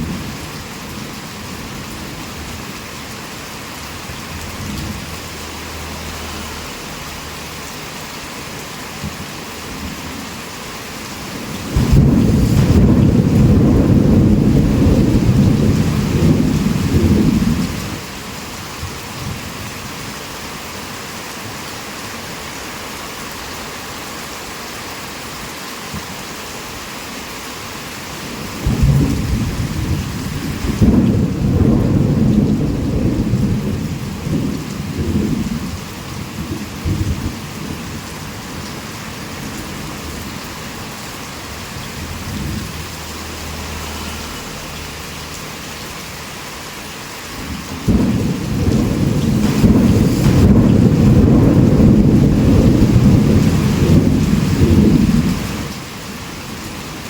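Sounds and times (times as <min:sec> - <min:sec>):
heavy rain: 0:00.0 - 0:57.0
thunder rumbling: 0:11.2 - 0:18.0, 0:28.3 - 0:44.8, 0:47.3 - 0:57.0.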